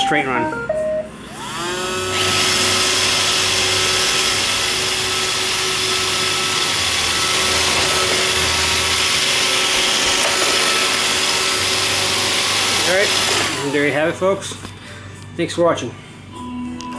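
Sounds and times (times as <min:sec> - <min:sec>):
robot vacuum motor whine: 0:01.2 - 0:14.8.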